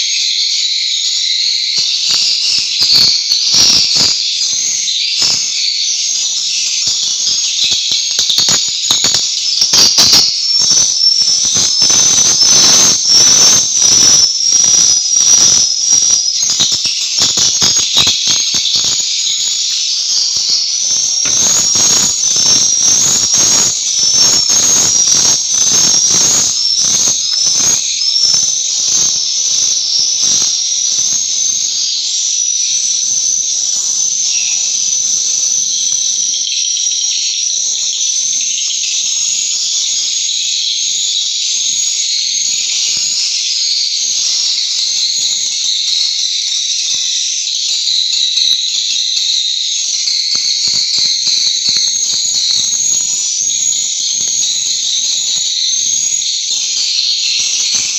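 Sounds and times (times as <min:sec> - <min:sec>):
swiftlets chirping: 0:01.1 - 0:30.6.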